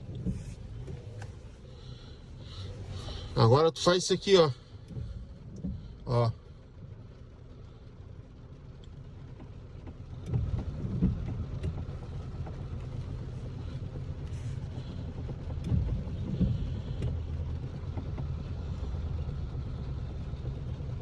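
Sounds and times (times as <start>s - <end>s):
steering column thumps and clicks: 0.0s - 6.2s, 8.7s - 18.5s
car low rumble: 0.0s - 21.0s.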